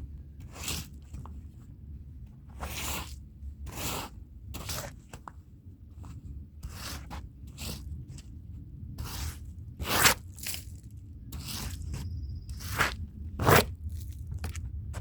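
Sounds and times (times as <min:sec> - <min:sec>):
steady low hum: 0:00.0 - 0:15.0
brush scrubbing a wet rug: 0:02.6 - 0:05.0.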